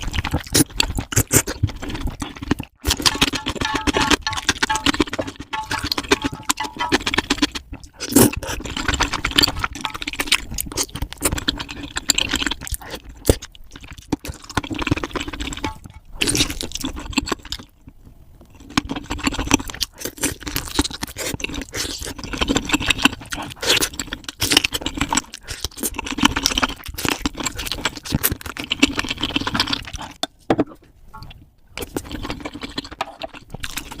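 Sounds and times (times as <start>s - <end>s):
crunching and chewing fried chicken: 0.0s - 34.0s.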